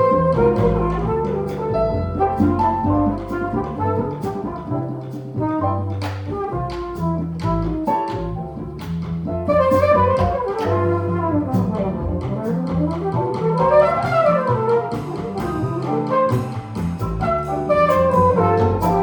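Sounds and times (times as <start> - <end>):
jazz band playing: 0.0 - 19.0
drum and cymbal strikes: 11.6 - 19.0.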